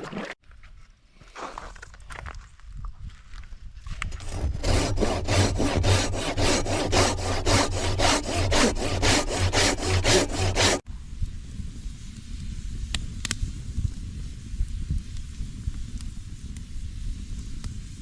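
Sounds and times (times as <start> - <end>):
hand saw cutting wood: 4.2 - 10.8.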